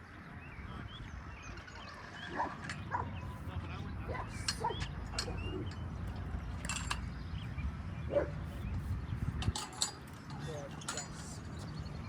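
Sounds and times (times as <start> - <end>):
dog barking and yipping: 2.3 - 3.1.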